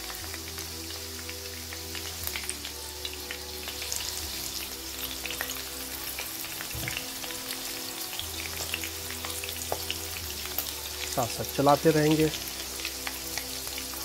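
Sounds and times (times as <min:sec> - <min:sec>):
food sizzling and crackling in oil: 0:00.0 - 0:14.0.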